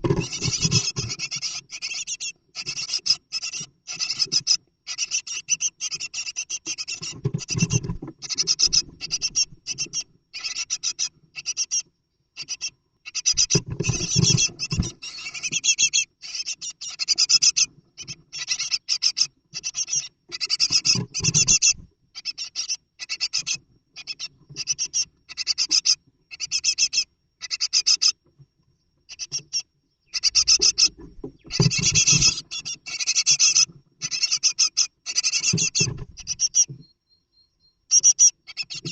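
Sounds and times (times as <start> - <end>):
bird scratching in nest box: 0.0 - 1.6, 6.4 - 9.9, 13.3 - 15.7, 30.4 - 34.2.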